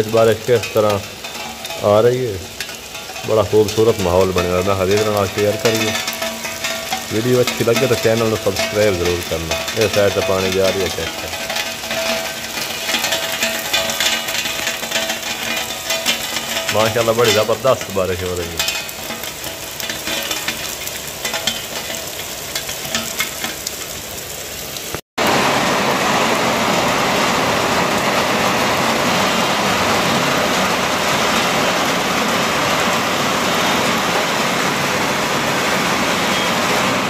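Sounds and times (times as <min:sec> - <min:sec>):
close drips ticking: 0:00.0 - 0:24.2
heavy rain: 0:00.0 - 0:37.0.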